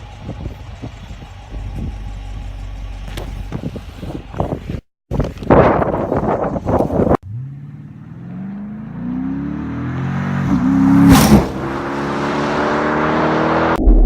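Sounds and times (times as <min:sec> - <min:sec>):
car engine accelerating: 0:07.2 - 0:14.0.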